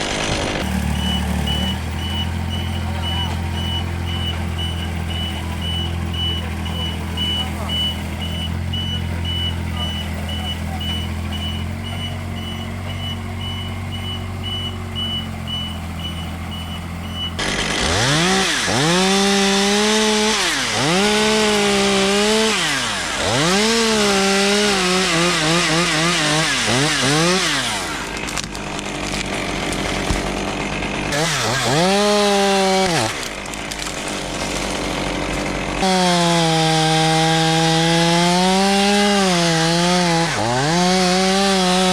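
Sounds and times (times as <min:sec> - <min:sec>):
engine idling: 0:00.0 - 0:18.1, 0:27.6 - 0:32.4, 0:33.1 - 0:35.9
chainsaw revving and cutting: 0:00.0 - 0:41.9.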